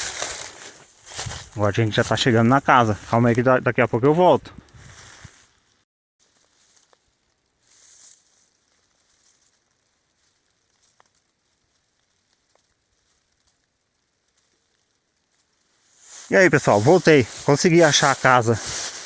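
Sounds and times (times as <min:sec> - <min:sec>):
faint rustling: 0:06.2 - 0:19.0
hiss: 0:18.6 - 0:19.0.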